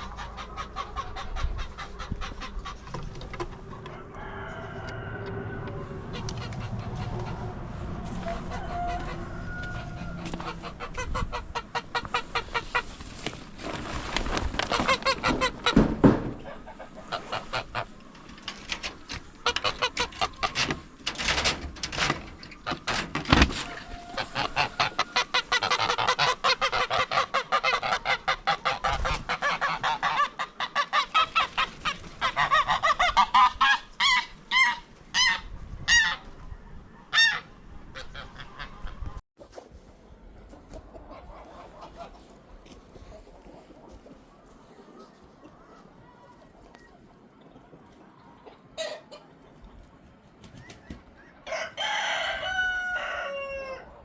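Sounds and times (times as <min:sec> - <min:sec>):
poultry honking squawks: 0:04.3 - 0:12.9, 0:23.6 - 0:31.4, 0:48.8 - 0:49.3.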